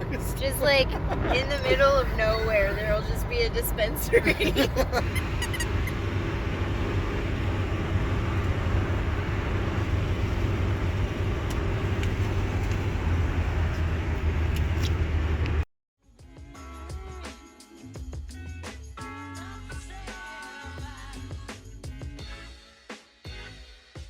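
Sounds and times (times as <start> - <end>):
van engine and road drone: 0.0 - 15.7.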